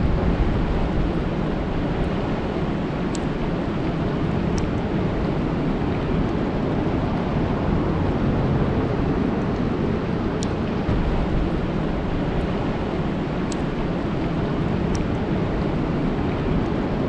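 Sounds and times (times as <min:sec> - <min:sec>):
low rumble: 0:00.0 - 0:17.0
rain falling on a lake: 0:00.0 - 0:17.0
faint ticks: 0:13.5 - 0:13.7.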